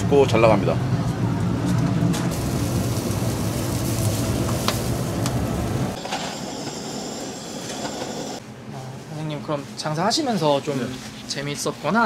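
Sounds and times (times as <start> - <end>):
fire crackles: 2.3 - 8.4
wood fire hissing: 2.3 - 8.4.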